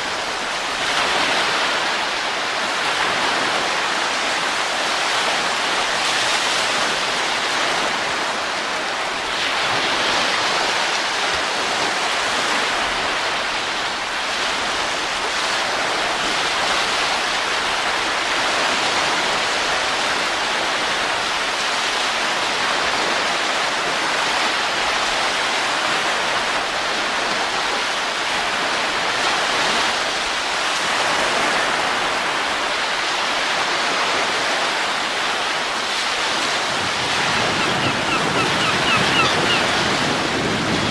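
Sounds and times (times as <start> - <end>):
steady wind rush: 23.9 - 40.9.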